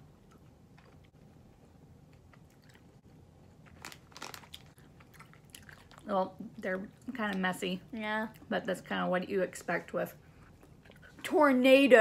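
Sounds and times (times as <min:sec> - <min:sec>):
chewing candy: 0:02.0 - 0:06.1.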